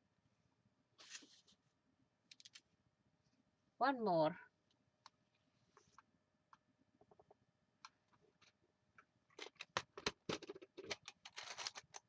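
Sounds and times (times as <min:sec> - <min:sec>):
paper rustling: 0:01.0 - 0:01.6.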